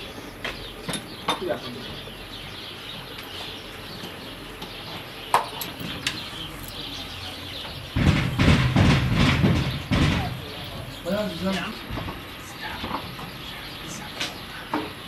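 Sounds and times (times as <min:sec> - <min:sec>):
bird chirps: 0:00.0 - 0:15.0
rattling and knocking: 0:07.6 - 0:12.2.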